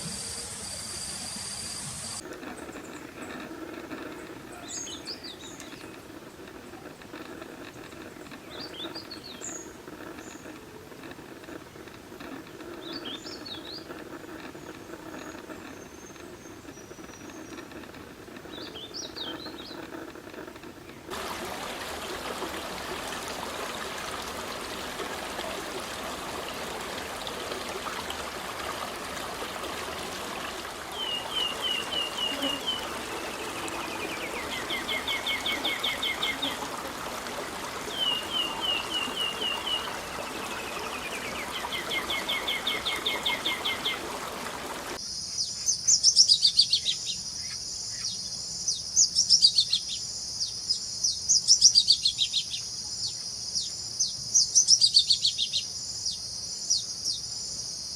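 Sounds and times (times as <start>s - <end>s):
running water: 0.0s - 45.0s
songbirds calling: 0.0s - 57.7s.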